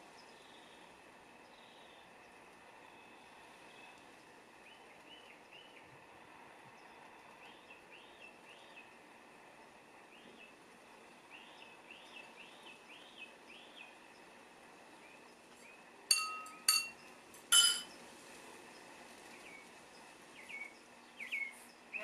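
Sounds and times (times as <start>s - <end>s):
small birds chirping: 0.0s - 9.1s, 9.8s - 22.0s
faint outdoor hiss: 0.0s - 22.0s.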